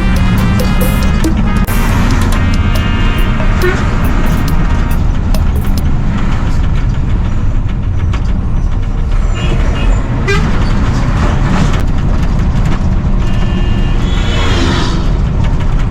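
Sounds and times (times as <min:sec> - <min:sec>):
short horn toots: 0:00.0 - 0:06.6
truck engine rumbling: 0:00.0 - 0:15.9.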